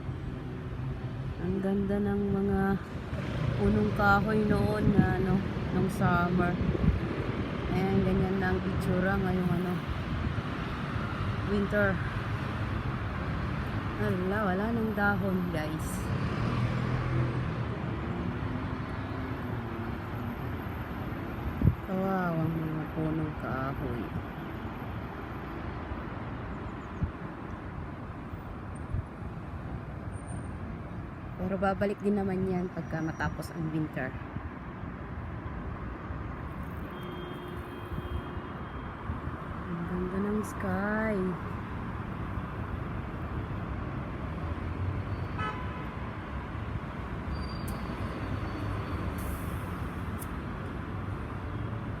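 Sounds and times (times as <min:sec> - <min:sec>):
distant road traffic rumble: 0:00.0 - 0:52.0
vehicle horn toot: 0:36.9 - 0:38.9, 0:45.3 - 0:45.8.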